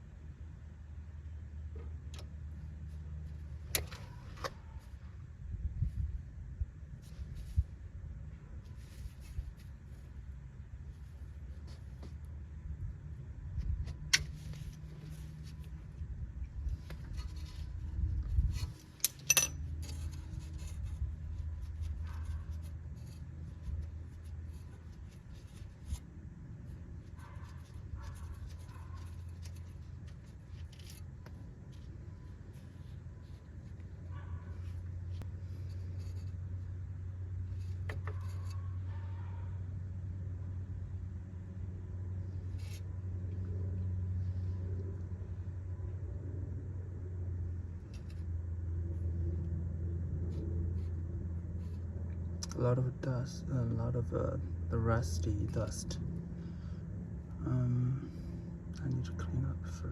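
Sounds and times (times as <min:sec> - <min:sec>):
steady low hum: 0:00.0 - 0:59.9
tools and metal parts clinking: 0:18.6 - 0:20.7.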